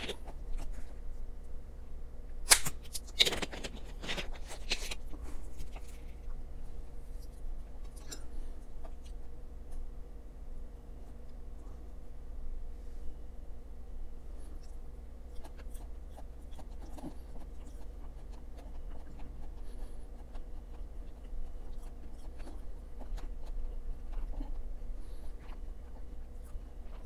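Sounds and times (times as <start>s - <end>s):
man chewing food: 0.0s - 1.5s, 3.0s - 9.9s, 14.2s - 27.0s
low electrical hum: 0.0s - 27.0s.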